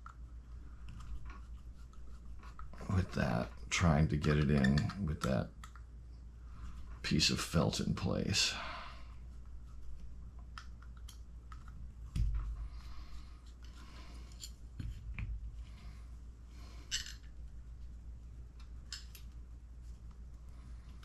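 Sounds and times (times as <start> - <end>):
steady low hum: 0.0 - 21.0
small parts and tools clicking: 16.8 - 17.4.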